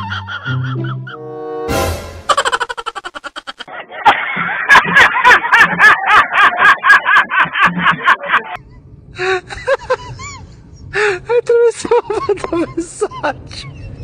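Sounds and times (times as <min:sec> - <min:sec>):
man laughing hard: 0:02.3 - 0:08.6, 0:09.2 - 0:14.0.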